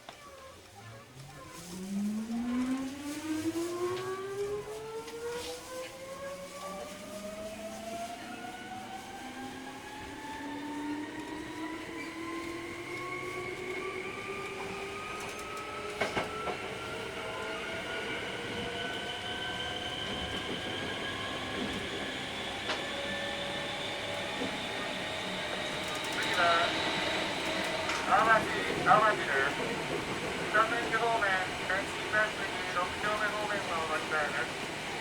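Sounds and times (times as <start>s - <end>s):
electric train motor whine: 1.8s - 35.0s
wheels clicking on track: 9.8s - 35.0s.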